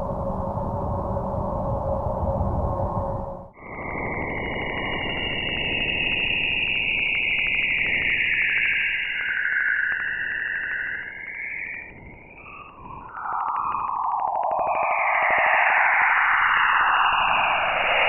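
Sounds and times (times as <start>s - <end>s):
wavering whistle-like tone: 3.6s - 18.0s.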